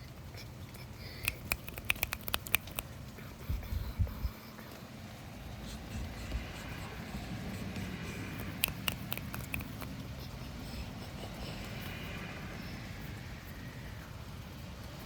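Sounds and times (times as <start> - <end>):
fingernails scratching fabric: 1.2 - 2.8, 7.9 - 9.9
sharp clicks: 1.2 - 2.9, 8.4 - 9.9.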